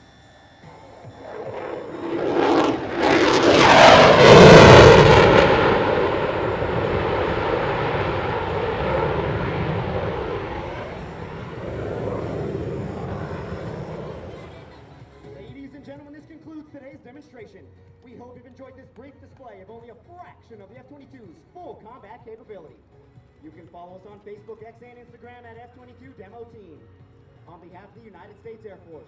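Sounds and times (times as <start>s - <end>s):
fighter jet roaring past: 0.7s - 14.7s.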